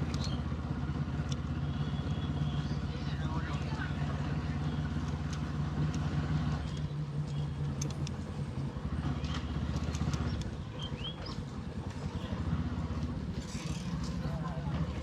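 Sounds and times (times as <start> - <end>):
motorcycle engine running: 0.0 - 15.0
clicks: 4.9 - 8.4.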